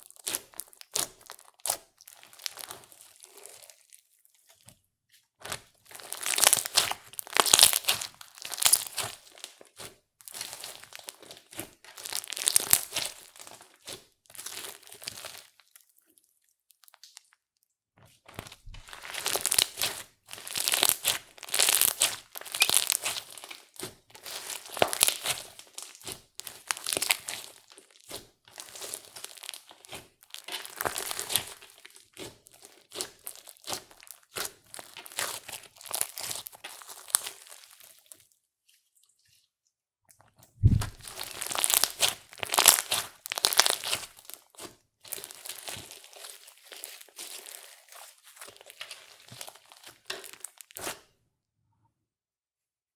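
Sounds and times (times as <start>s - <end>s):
low thump: 40.6s - 41.0s.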